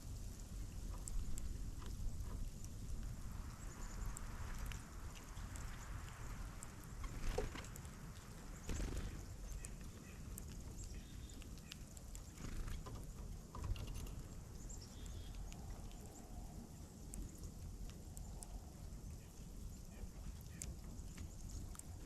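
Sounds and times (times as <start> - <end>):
low outdoor rumble: 0.0 - 22.0
birds tapping and pecking: 0.3 - 18.6
faint high bird chirps: 14.6 - 15.5.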